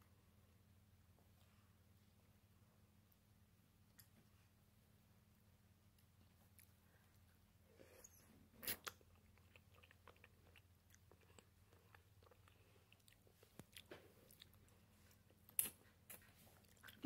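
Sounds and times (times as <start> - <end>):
person chewing food: 5.9 - 17.0.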